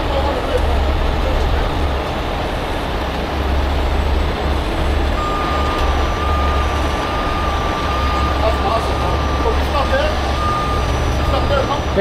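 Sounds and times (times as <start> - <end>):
heavy truck engine rumbling: 0.0 - 12.0
high-pitched warning tone: 5.2 - 11.8.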